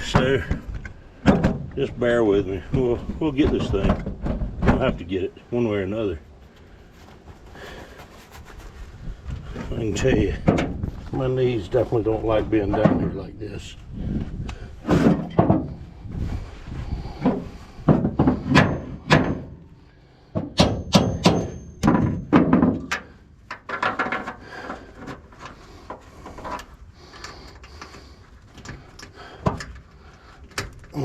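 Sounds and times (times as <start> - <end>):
metal knocks and clunks: 0.0 - 2.0, 2.7 - 5.3, 10.3 - 10.9, 14.8 - 15.8, 17.2 - 24.4.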